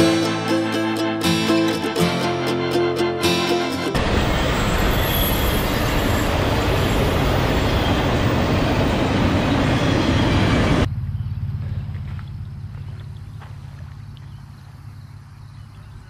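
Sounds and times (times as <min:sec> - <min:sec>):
freight train passing: 0:01.5 - 0:11.6.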